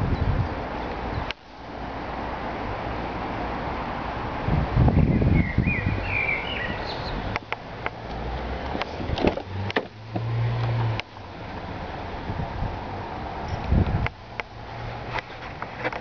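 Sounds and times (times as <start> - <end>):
sharp clicks and knocks: 7.3 - 11.1, 15.1 - 16.0.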